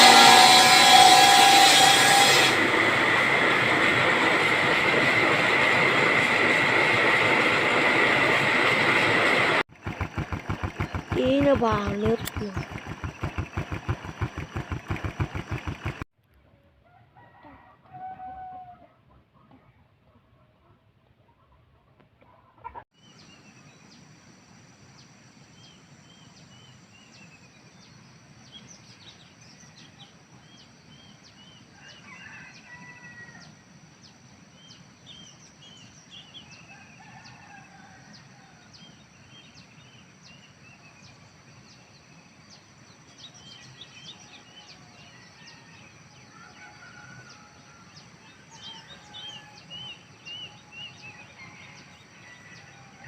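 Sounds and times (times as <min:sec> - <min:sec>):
thin high whine: 0:00.0 - 0:09.5
birds chirping: 0:05.2 - 0:16.0.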